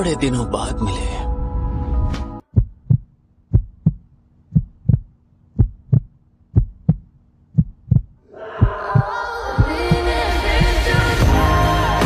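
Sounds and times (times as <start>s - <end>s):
heartbeat thumps: 2.4s - 11.3s
music with singing: 8.4s - 12.0s.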